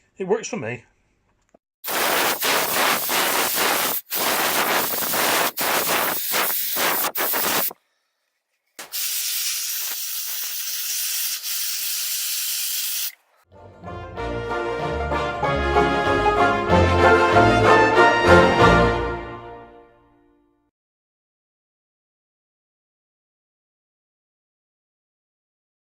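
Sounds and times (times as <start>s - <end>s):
compressed air blasting microphone: 1.8s - 7.8s, 8.8s - 13.2s.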